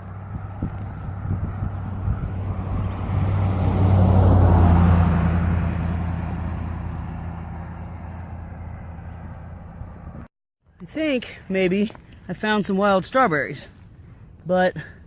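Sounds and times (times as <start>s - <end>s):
vehicle passing by: 0.0s - 10.3s.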